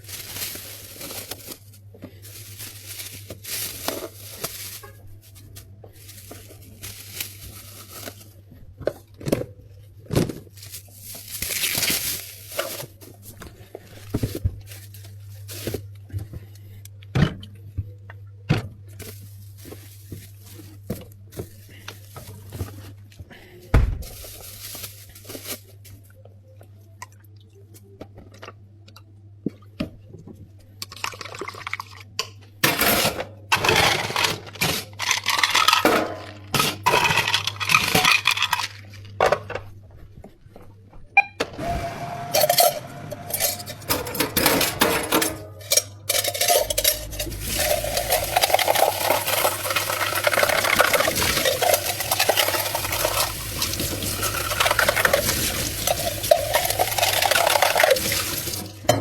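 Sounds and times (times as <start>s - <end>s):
low machine hum: 0.0s - 30.8s, 32.5s - 59.0s
ice and cups clinking: 33.6s - 35.9s, 42.4s - 59.0s.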